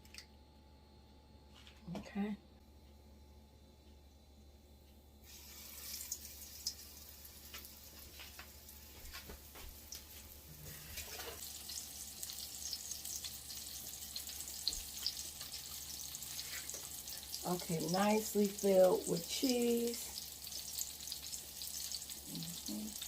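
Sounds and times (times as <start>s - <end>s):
chicken frying in oil: 5.2s - 23.0s.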